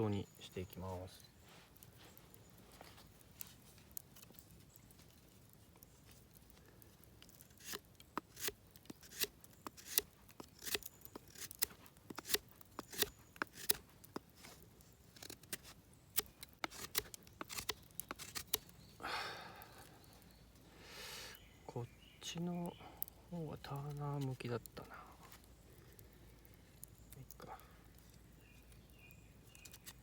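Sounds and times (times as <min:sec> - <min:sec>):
knife whittling wood: 0:07.6 - 0:14.5, 0:15.2 - 0:18.6.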